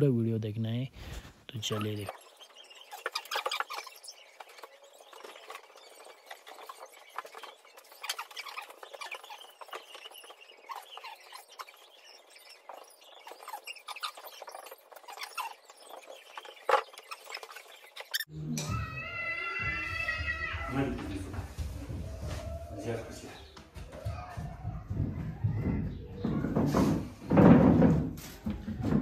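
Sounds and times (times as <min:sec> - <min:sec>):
high chirping and squeaking calls: 0:01.0 - 0:21.2.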